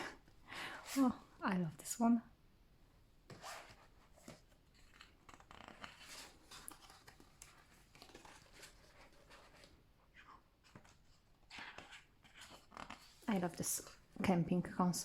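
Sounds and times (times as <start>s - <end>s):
paper pages rustling: 3.3s - 14.0s.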